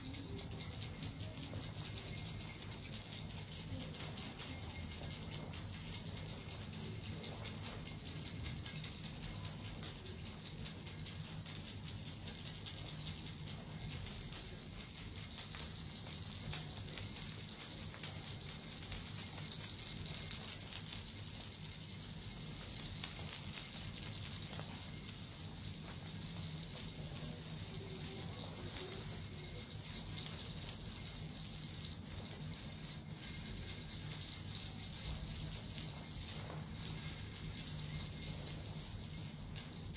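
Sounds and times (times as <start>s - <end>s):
bells and metal rattle jingling: 0.0s - 39.9s.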